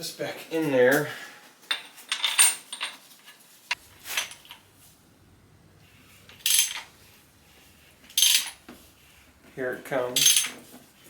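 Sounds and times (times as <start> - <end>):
metal engine parts clinking: 1.7 - 3.1, 3.8 - 9.4, 10.0 - 10.9
ringing metal clanks: 6.3 - 6.9, 8.0 - 8.7, 10.1 - 10.6.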